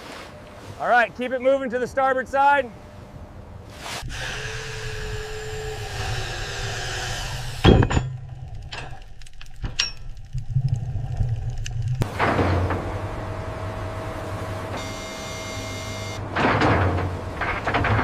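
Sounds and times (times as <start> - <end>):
machinery rumble: 2.8 - 18.0
loud metallic clank: 7.6 - 8.3.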